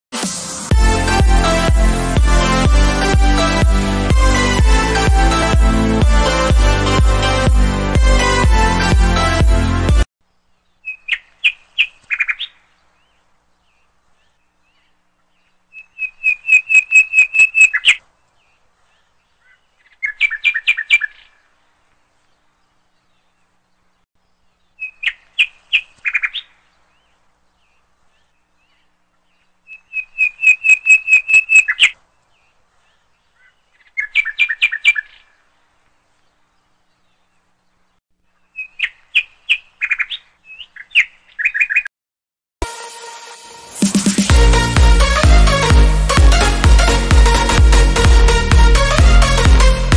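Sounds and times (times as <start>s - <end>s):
rapid bird chirping: 10.2s - 21.6s, 22.3s - 35.5s, 36.3s - 41.9s.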